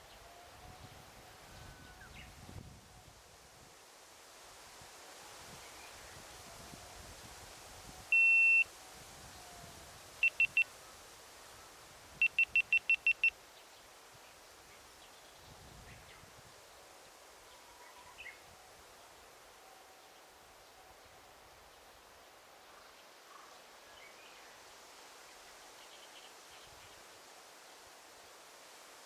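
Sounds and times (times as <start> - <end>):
faint forest ambience: 0.0 - 29.0
high-pitched electronic beeps: 8.1 - 8.6, 10.2 - 10.6, 12.2 - 13.3
faint bird chirps: 8.1 - 8.7, 10.2 - 10.7, 12.2 - 13.3.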